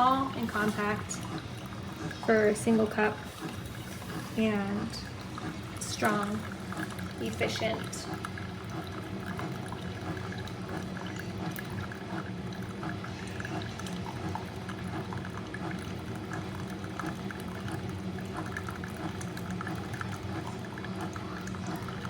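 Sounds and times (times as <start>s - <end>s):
coffee pouring into a mug: 0.0s - 22.0s
low machine hum: 0.0s - 22.0s.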